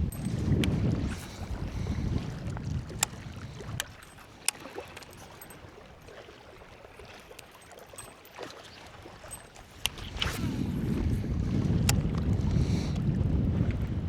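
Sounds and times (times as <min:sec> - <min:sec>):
faint ticks: 0:00.1 - 0:05.6.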